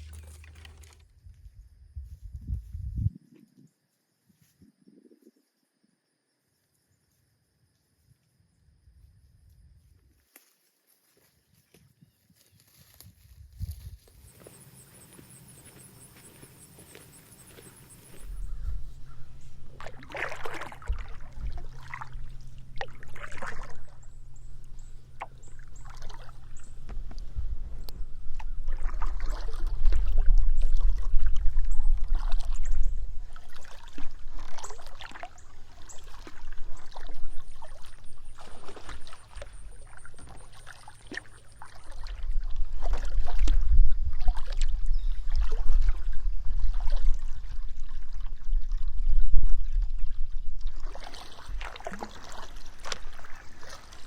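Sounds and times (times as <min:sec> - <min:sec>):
paddle strokes in water: 0:00.0 - 0:01.0, 0:12.4 - 0:54.0
water dripping off paddle: 0:15.6 - 0:43.6, 0:50.8 - 0:54.0.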